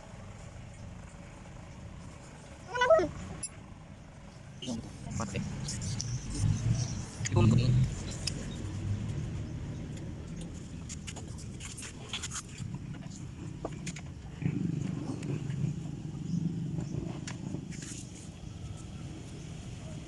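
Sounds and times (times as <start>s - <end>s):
small motorcycle engine idling: 0.0s - 11.5s.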